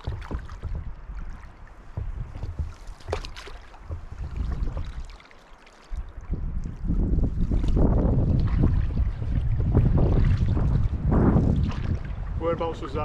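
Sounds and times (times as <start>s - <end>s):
sharp knocks: 0.0s - 5.1s
wind on microphone: 0.0s - 5.2s, 6.0s - 13.0s
paddle splashes: 0.0s - 13.0s
water lapping: 0.0s - 13.0s.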